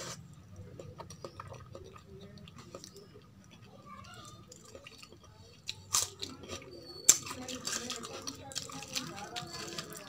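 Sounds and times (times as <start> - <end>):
person chewing: 0.0 - 10.0.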